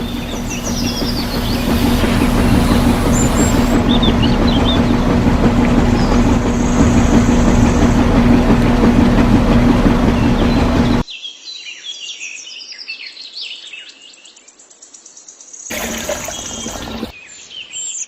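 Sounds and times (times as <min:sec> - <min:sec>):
birds chirping: 0:00.0 - 0:11.0, 0:15.7 - 0:17.1
small motor humming: 0:00.0 - 0:11.0, 0:15.7 - 0:17.1.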